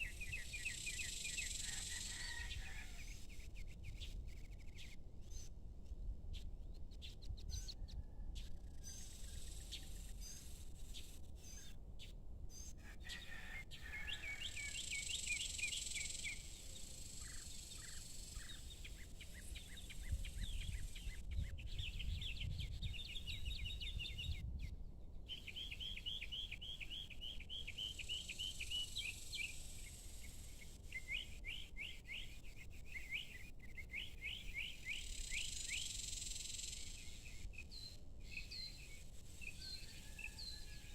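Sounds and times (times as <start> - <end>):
high-pitched insect hiss: 0.0 - 2.0, 14.7 - 18.7, 27.9 - 31.4, 34.7 - 37.4
small bird chirping: 14.5 - 24.5, 25.3 - 40.6.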